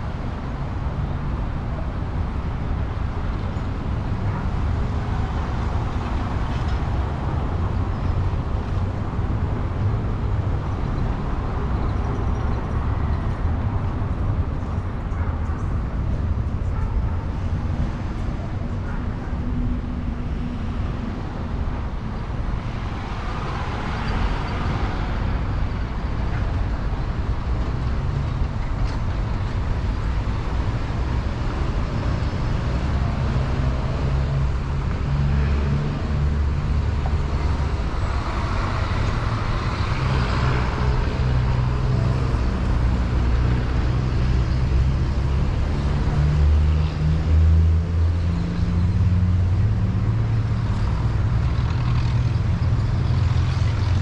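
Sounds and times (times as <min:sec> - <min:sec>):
car engine and tyre noise: 0:00.0 - 0:54.0.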